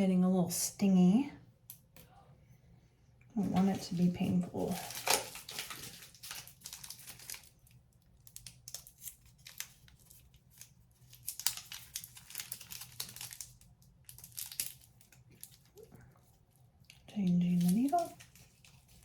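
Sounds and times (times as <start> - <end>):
packaging crinkling and tearing: 4.6 - 19.0.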